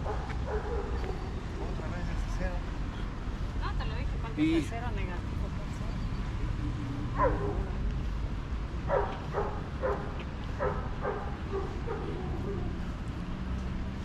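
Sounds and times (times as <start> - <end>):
dog barking: 0.0 - 1.2, 7.2 - 7.8, 8.8 - 12.7.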